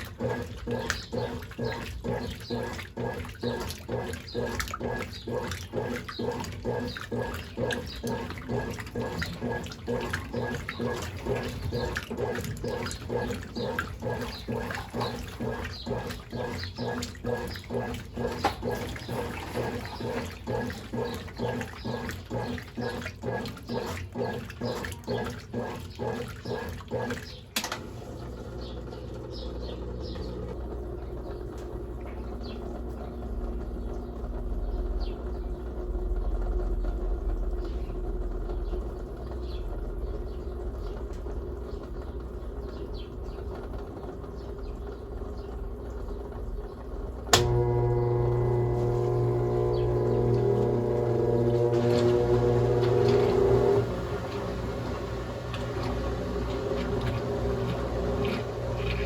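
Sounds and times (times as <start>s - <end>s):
running water: 0.0s - 28.7s, 43.1s - 59.0s
washing machine agitating: 0.0s - 59.0s
low hum: 47.3s - 59.0s.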